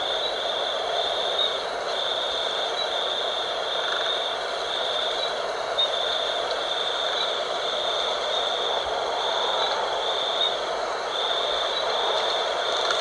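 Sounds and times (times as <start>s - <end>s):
insects trilling: 0.0s - 13.0s
wind rushing: 7.8s - 13.0s.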